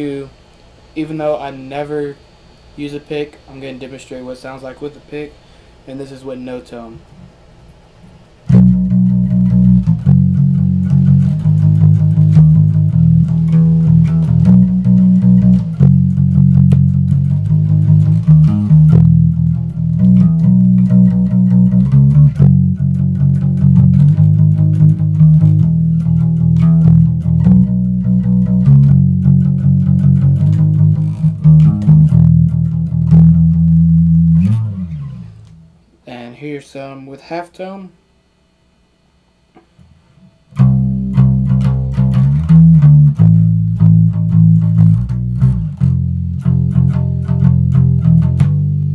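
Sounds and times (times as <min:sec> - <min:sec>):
muffled picked bass guitar: 0:08.5 - 0:35.8, 0:40.5 - 0:48.9.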